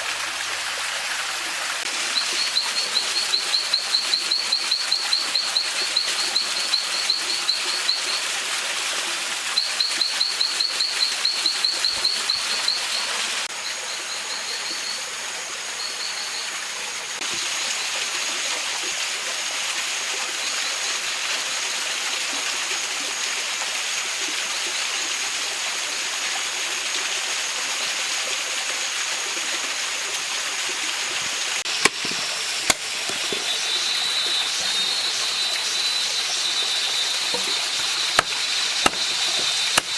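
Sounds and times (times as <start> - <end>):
mountain stream running: 0.0 - 39.9
bird trilling chirps: 2.0 - 8.2, 9.6 - 13.4, 31.7 - 39.9
thin steady high tone: 9.5 - 15.2, 31.1 - 39.9
sharp clicks: 31.7 - 33.7, 37.1 - 39.9.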